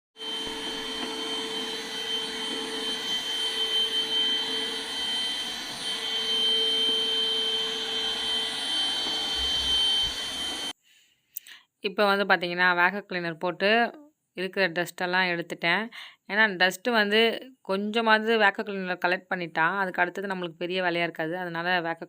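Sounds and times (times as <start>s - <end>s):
vacuum cleaner running: 0.2s - 10.8s.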